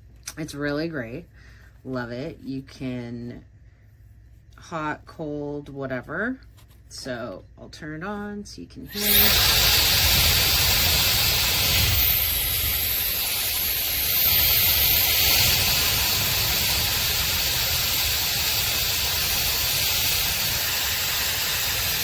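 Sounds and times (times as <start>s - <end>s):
hair dryer running: 8.9s - 22.0s.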